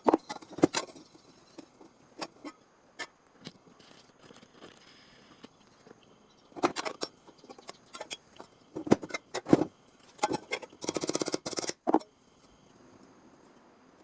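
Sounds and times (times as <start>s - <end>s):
metal tools clicking and knocking: 6.6s - 9.5s, 10.1s - 12.1s
rapid ticking rattle: 10.2s - 11.8s.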